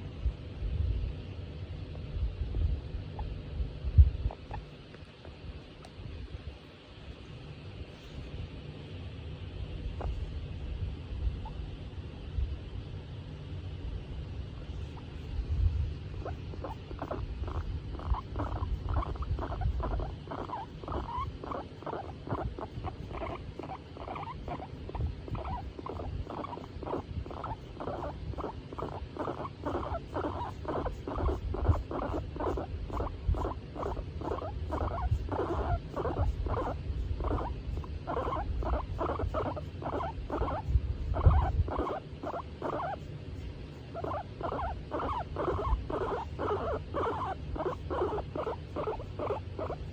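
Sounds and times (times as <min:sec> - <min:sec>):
guinea pig short calls: 0:04.3 - 0:04.8, 0:16.1 - 0:49.9.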